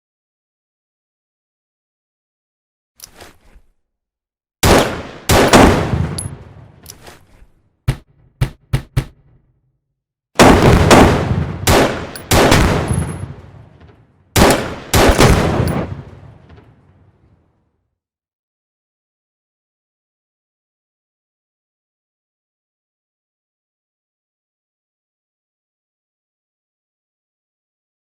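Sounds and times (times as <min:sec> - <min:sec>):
sharp single gunshots: 0:04.6 - 0:06.4, 0:10.4 - 0:13.4, 0:14.4 - 0:16.0
gunshots echoing: 0:04.6 - 0:06.8, 0:10.4 - 0:16.6.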